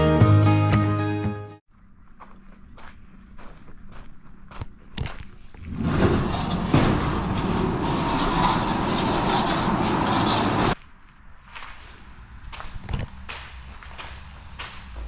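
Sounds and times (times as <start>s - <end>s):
skid steer engine running: 5.6s - 10.8s.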